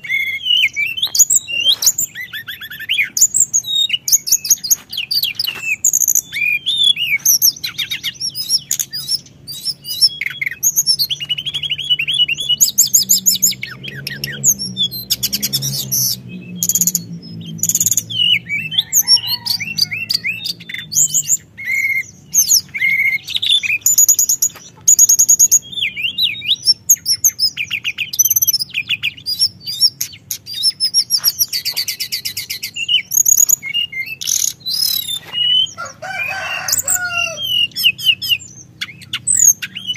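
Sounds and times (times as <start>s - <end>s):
songbird singing trills: 0.0s - 39.9s.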